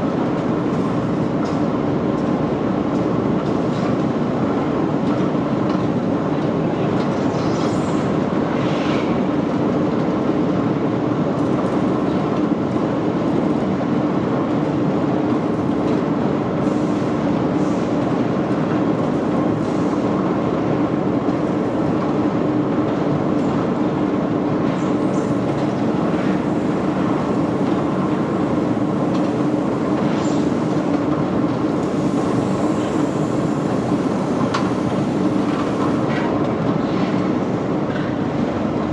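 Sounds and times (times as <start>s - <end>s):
machinery humming: 23.5s - 36.3s.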